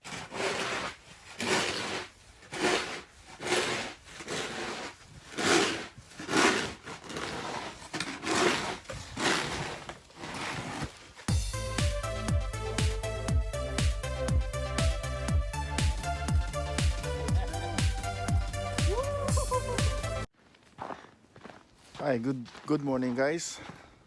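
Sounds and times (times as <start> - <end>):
crunching scraping strokes in snow: 0.0 - 11.5.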